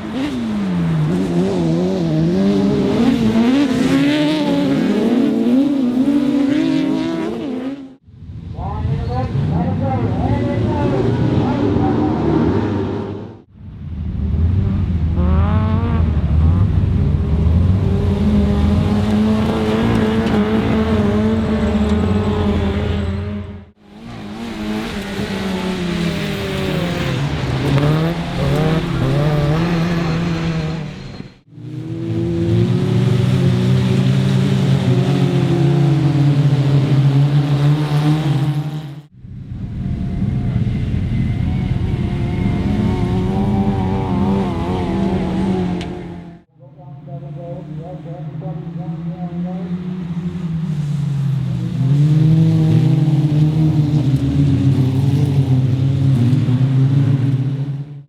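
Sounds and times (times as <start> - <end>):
racing car engines revving: 0.0 - 58.0.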